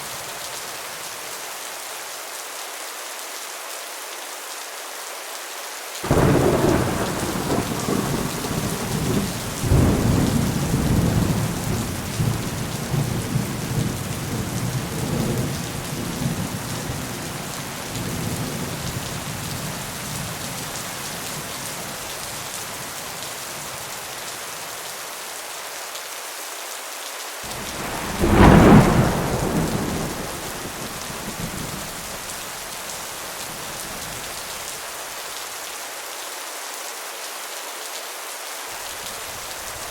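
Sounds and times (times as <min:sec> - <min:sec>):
steady rain: 0:00.0 - 0:39.9
sharp thunder clap: 0:06.1 - 0:12.4, 0:27.5 - 0:32.2
rolling thunder: 0:06.1 - 0:16.7, 0:27.5 - 0:32.4.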